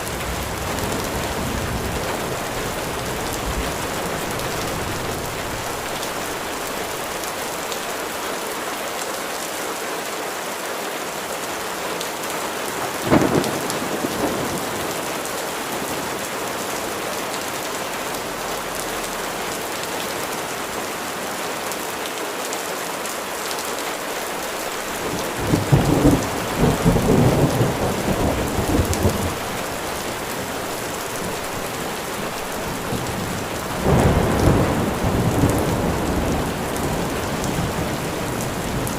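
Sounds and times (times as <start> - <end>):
steady rain falling: 0.0 - 38.9
rolling thunder rumble: 12.9 - 16.2, 24.8 - 38.9
thunder crack: 13.0 - 15.1, 25.1 - 30.1, 33.2 - 38.9.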